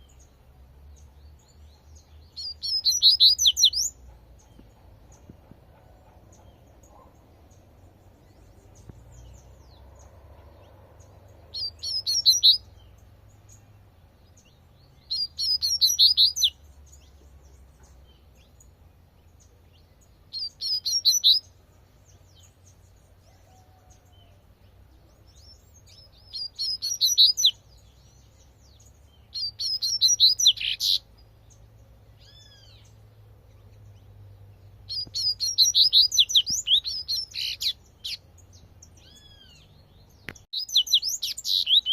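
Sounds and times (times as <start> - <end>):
bird singing rapid high notes: 2.2 - 4.0, 11.5 - 12.9, 15.0 - 16.6, 20.2 - 21.5, 25.9 - 27.7, 29.2 - 31.1, 34.9 - 41.9.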